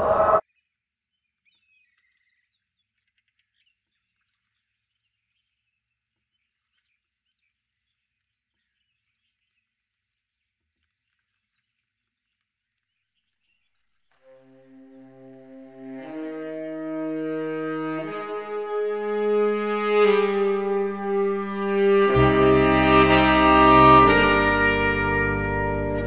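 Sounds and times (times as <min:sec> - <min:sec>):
music with wind-instrument tones: 0:14.3 - 0:26.0.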